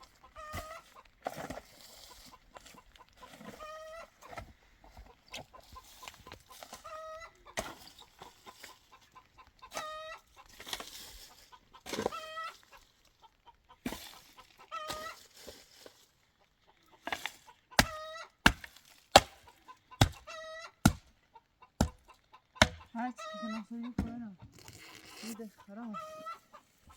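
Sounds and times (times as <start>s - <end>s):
chickens clucking: 0.0s - 26.9s
sharp knocks: 22.6s - 22.8s.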